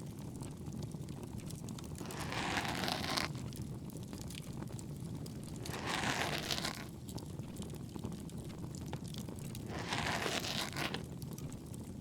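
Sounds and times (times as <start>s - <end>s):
ear pick scraping microphone: 2.0s - 3.4s, 5.6s - 6.9s, 9.7s - 11.1s.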